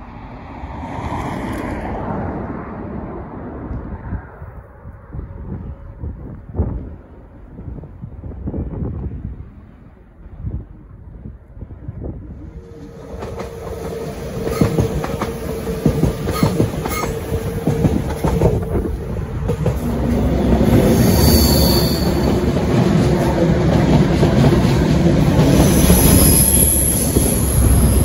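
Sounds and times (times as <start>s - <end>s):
train engine running loud: 9.1s - 28.0s
coaches rattling over track: 12.5s - 28.0s
high wheel squeal: 12.6s - 17.4s, 20.7s - 22.5s, 25.5s - 28.0s.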